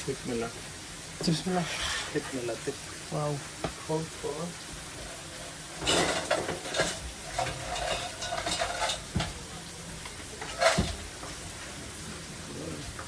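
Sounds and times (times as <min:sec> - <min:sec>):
food sizzling: 0:00.0 - 0:13.0
metal utensils scraping on griddle: 0:01.2 - 0:02.6, 0:04.9 - 0:11.7.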